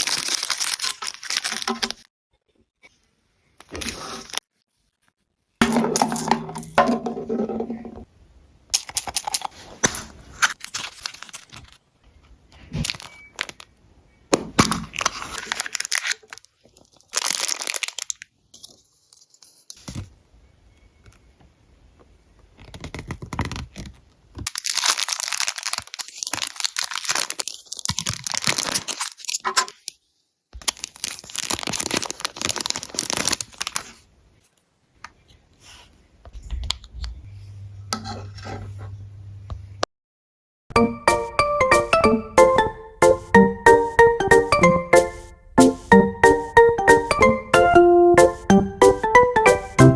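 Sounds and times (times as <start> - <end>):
packaging being torn open: 0.0 - 2.0, 8.8 - 11.8, 12.8 - 13.7, 14.6 - 18.8, 22.6 - 29.9, 30.6 - 34.0
plastic wrapping crinkling: 0.0 - 2.1, 8.8 - 11.8, 12.6 - 13.7, 14.4 - 19.9, 22.5 - 30.0, 30.6 - 34.1.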